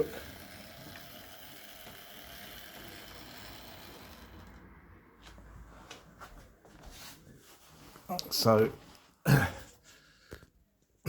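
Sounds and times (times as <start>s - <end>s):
model train whirring and rattling: 0.0s - 5.4s.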